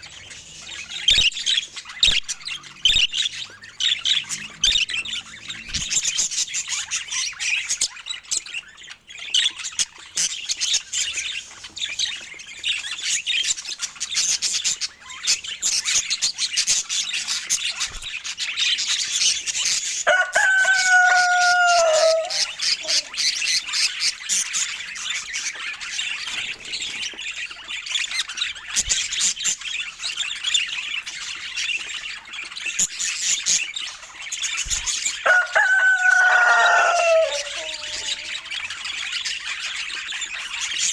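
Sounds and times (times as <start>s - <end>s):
budgies chattering and warbling: 0.0s - 40.9s
low held bird call: 20.1s - 23.2s, 35.2s - 38.5s.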